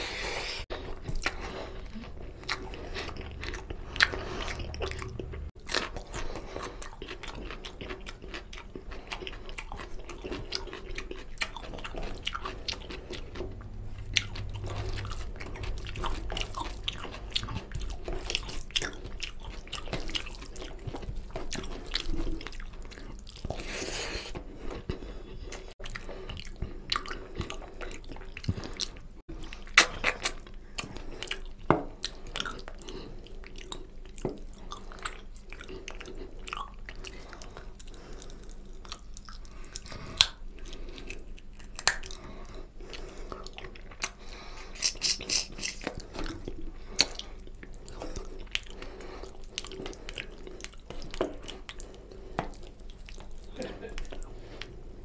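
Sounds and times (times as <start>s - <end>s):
chewing and biting food: 0.1s - 55.0s
mouth clicks and smacks: 26.4s - 32.9s, 41.0s - 42.3s, 42.9s - 54.7s.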